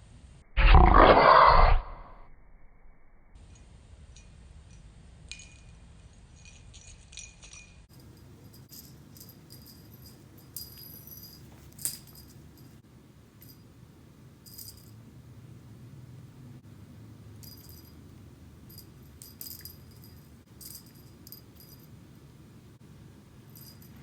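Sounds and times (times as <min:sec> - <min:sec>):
jingle bell tinkling: 0:06.3 - 0:12.8, 0:14.4 - 0:15.0, 0:17.4 - 0:22.0, 0:23.3 - 0:24.0.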